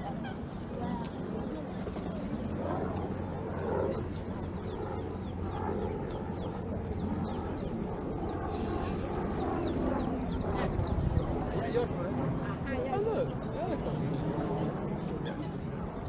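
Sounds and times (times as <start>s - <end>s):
birds chirping: 0.2s - 11.8s.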